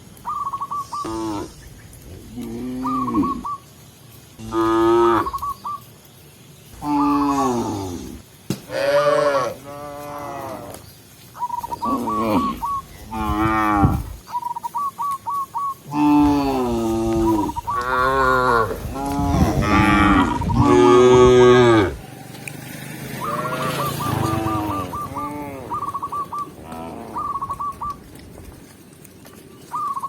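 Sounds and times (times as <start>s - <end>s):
cattle mooing: 4.4s - 5.4s, 6.8s - 10.8s, 11.8s - 14.2s, 15.9s - 28.0s.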